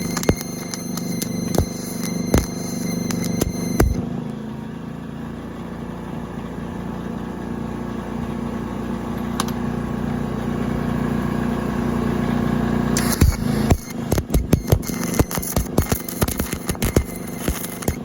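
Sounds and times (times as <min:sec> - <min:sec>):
sharp crackling clicks: 0:00.0 - 0:04.0, 0:13.0 - 0:18.0
welder engine running: 0:00.0 - 0:04.3, 0:09.4 - 0:18.0.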